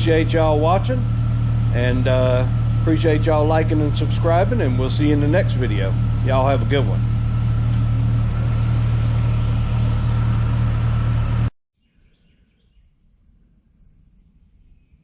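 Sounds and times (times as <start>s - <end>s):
car engine idling: 0.0s - 11.5s
faint bird chirps: 11.8s - 15.0s.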